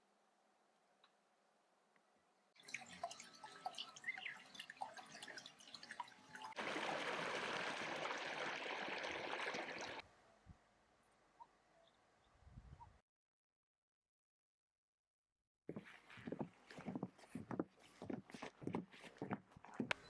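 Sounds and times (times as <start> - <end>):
water trickling and dripping: 2.6 - 10.0
rush of flowing water: 6.5 - 10.0.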